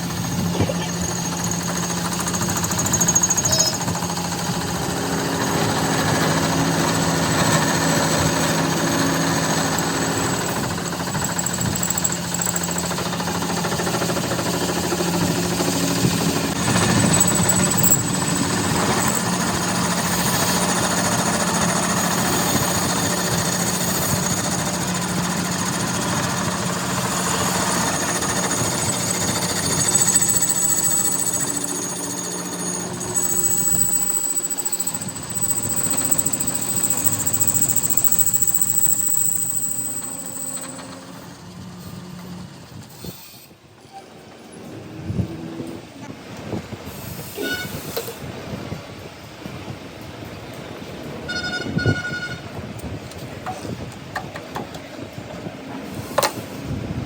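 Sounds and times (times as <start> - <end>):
rapid mechanical rattling: 0.0 - 43.1.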